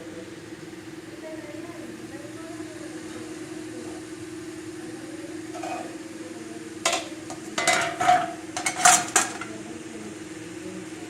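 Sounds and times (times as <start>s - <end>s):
steady low hum: 3.5s - 10.1s
metal spoon scraping a cooking pot: 5.6s - 6.0s, 6.9s - 9.5s.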